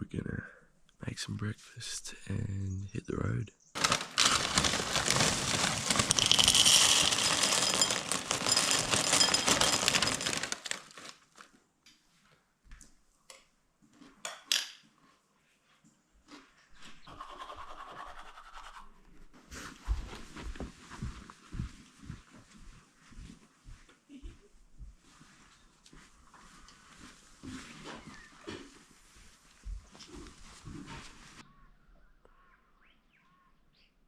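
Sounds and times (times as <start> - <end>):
scratchy rustling of camping gear: 3.8 - 11.6, 25.0 - 31.4.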